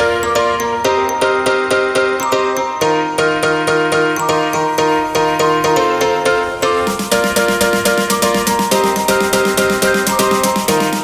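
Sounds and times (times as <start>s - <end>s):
plucked notes background music: 0.0s - 11.0s.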